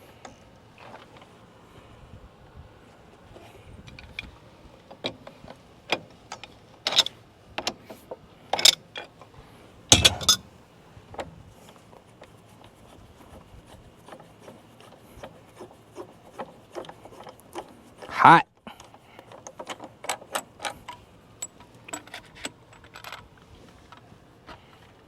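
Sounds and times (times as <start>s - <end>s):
hand tools clanking on metal: 9.9s - 10.5s.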